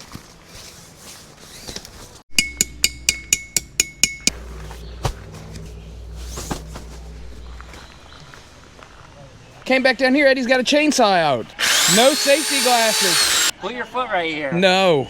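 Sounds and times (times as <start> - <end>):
ringing metallic strikes: 2.3 - 4.4.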